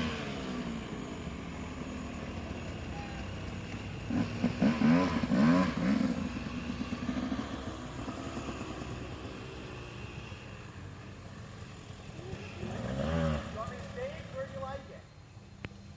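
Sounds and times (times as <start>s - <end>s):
dirt bike engine revving: 0.0s - 10.3s, 11.2s - 14.9s.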